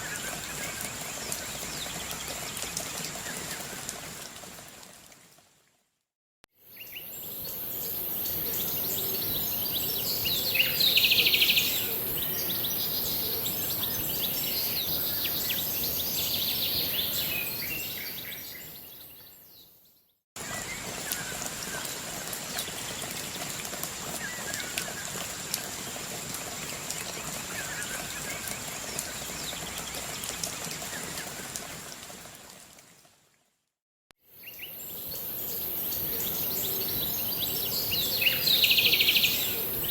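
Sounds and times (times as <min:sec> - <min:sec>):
steady high hiss: 0:06.7 - 0:17.9, 0:34.4 - 0:39.9
birds chirping and calling: 0:06.9 - 0:19.0, 0:34.5 - 0:39.9.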